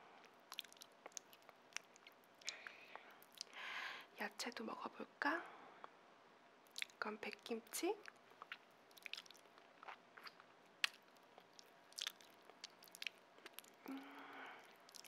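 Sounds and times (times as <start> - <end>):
chewing mouth sounds: 0.5 - 3.6, 6.7 - 7.0, 8.0 - 15.0.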